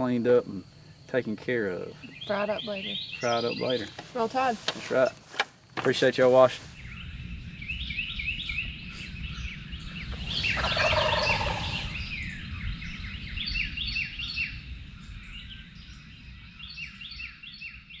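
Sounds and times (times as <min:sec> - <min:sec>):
songbirds chirping: 0:00.0 - 0:18.0
turkey gobbling: 0:10.0 - 0:12.2.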